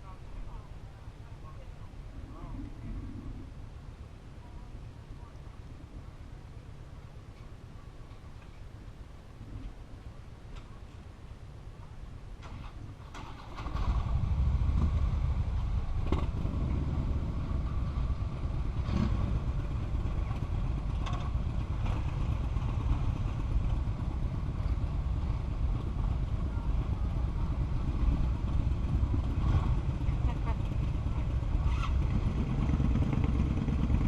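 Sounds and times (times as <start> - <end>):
wind rumble on microphone: 0.0 - 34.0
motorcycle engine drone: 12.4 - 34.0.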